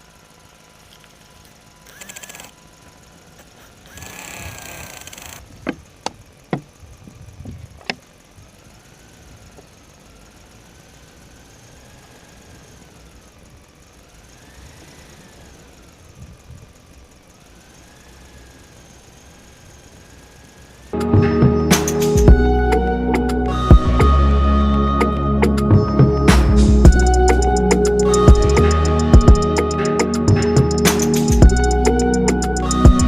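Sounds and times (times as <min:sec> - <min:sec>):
small electric motor whining: 0:00.0 - 0:21.0
sharp clicks: 0:01.8 - 0:02.6.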